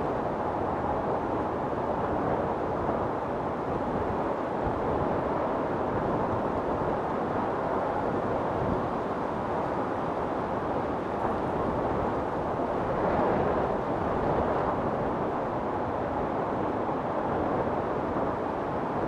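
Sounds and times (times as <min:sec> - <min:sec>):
strong storm wind: 0:00.0 - 0:19.0.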